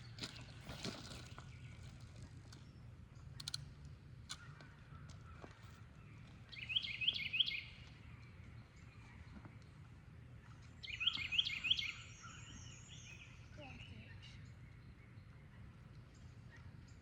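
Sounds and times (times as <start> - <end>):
faint outdoor background noise: 0.0 - 17.0
songbird chirping: 4.3 - 17.0.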